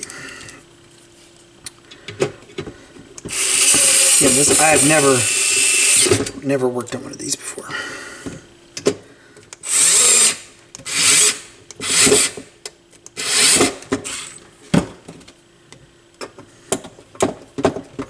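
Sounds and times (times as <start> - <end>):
electric screwdriver whirring: 3.2 - 6.2, 9.6 - 12.4, 13.2 - 14.4.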